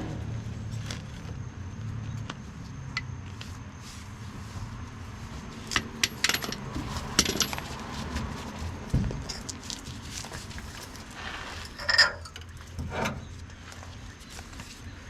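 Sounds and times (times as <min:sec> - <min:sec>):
metal hand tools clinking: 0:05.7 - 0:07.8, 0:11.8 - 0:12.5.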